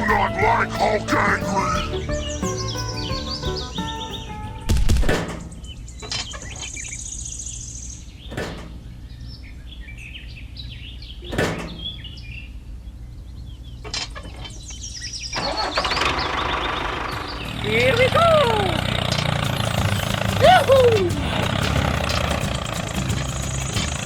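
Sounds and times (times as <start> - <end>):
vehicle engine humming: 0.0 - 5.6, 15.6 - 24.0
birds chirping: 0.0 - 24.0.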